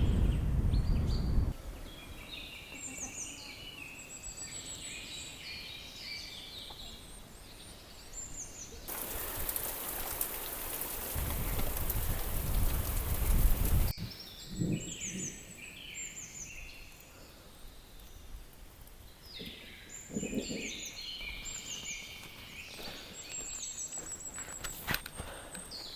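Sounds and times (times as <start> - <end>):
rain hiss: 8.9 - 13.9.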